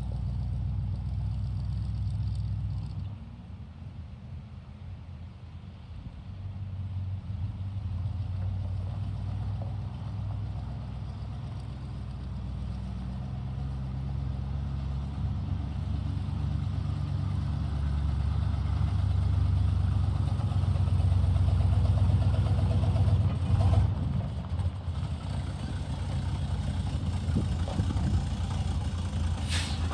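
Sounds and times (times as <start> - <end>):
truck engine droning: 7.3 - 29.9.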